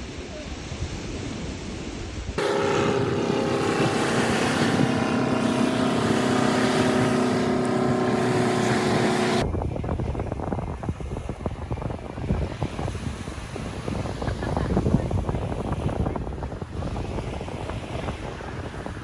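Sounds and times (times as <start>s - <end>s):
wind buffeting microphone: 0.7s - 19.0s
boat engine humming: 2.4s - 9.4s.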